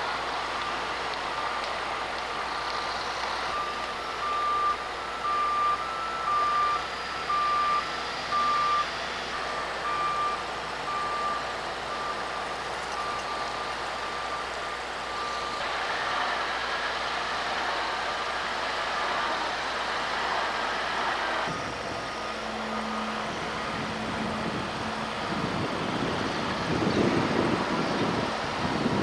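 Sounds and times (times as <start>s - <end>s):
engine hum: 0.0s - 29.0s
backup alarm beeping: 2.9s - 15.6s.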